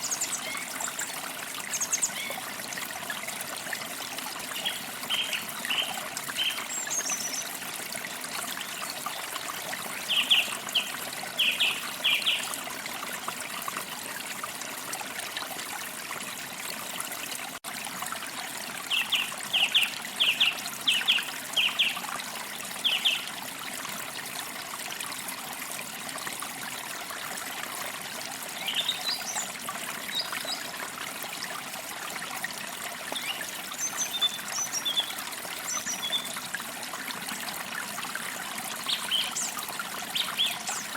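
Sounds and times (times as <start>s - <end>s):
stream trickling: 0.0s - 40.9s.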